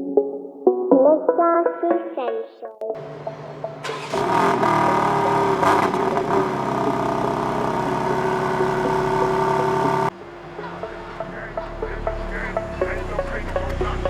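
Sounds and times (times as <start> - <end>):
car engine starting and idling: 3.0 - 14.0.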